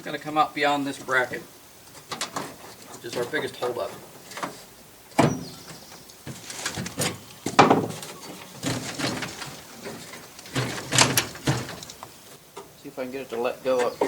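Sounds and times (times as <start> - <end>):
metal scraping: 0.9 - 12.2
metal knocks and clanks: 5.2 - 12.0.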